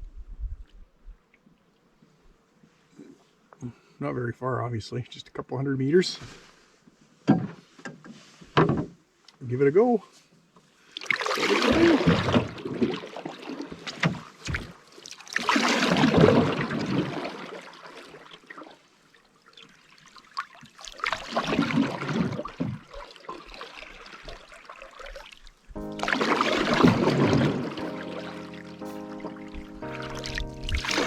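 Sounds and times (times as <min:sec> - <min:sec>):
canoe paddle swishing in water: 0:10.6 - 0:31.0.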